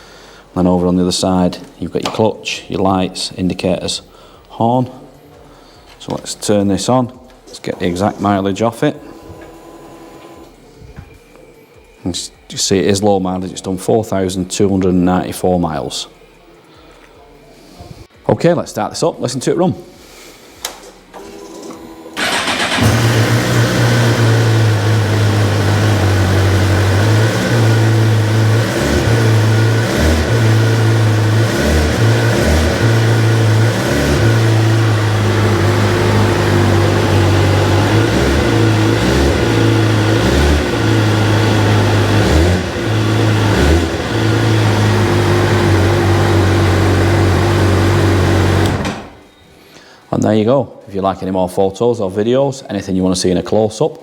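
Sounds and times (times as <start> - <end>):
motorcycle engine running: 22.2 - 48.8
motorcycle starter turning: 22.2 - 49.2.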